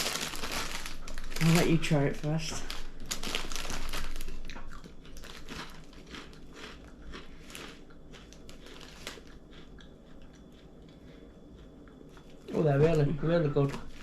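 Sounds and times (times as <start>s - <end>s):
crunching crispy snack: 0.0s - 11.0s.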